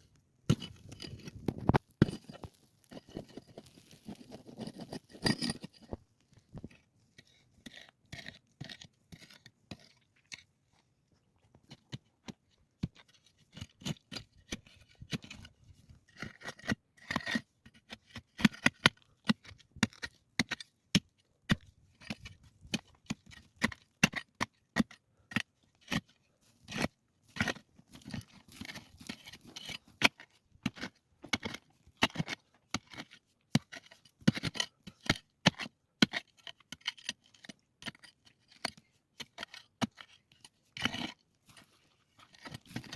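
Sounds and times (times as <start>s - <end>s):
sharp knocks and scrapes: 0.5s - 6.8s, 26.7s - 32.2s.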